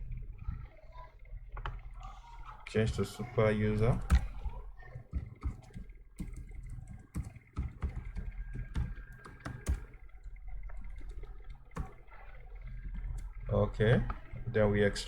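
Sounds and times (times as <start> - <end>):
keyboard key clicks: 3.0 - 13.3.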